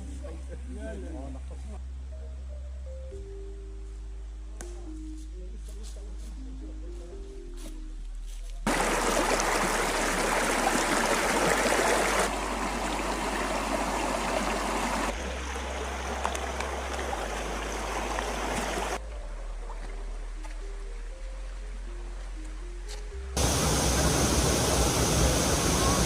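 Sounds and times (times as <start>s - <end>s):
stream water rushing: 8.7s - 19.1s, 23.4s - 26.0s.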